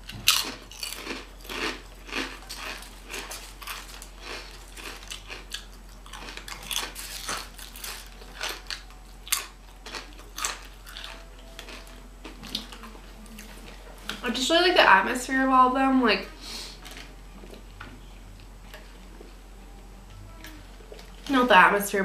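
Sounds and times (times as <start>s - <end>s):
chewing crunchy chips: 0.0s - 14.2s.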